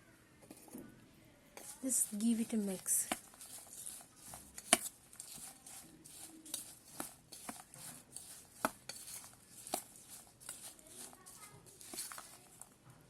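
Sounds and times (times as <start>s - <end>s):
utensil scraping a dish: 1.6s - 12.8s
rustle of fried corn: 1.6s - 12.9s.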